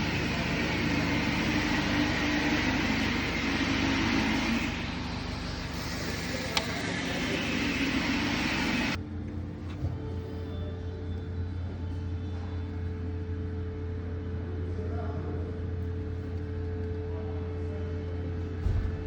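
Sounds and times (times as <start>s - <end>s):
vehicle noise hiss and rumble: 0.0s - 9.0s
low hum: 0.0s - 15.4s.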